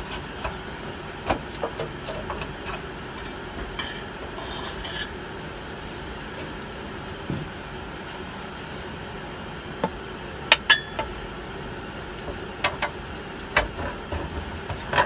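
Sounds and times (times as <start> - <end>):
scraping rub: 3.8 - 5.1
tools knocking and clinking: 9.8 - 11.2.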